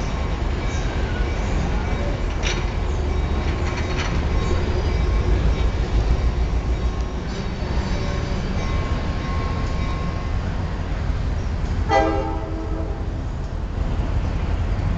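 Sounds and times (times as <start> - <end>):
train rolling with low rumble: 0.0 - 14.9
short train horn toot: 11.9 - 13.2.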